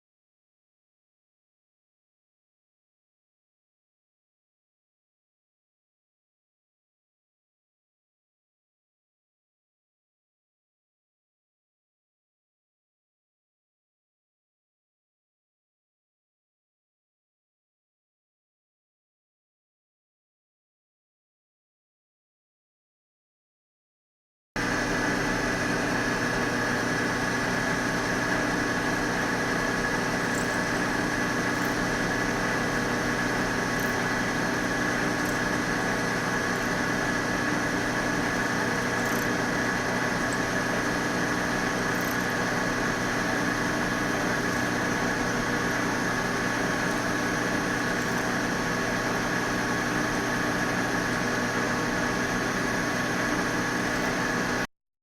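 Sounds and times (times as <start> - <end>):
high machine whine: 24.6 - 54.7
milling machine motor hum: 24.6 - 54.7.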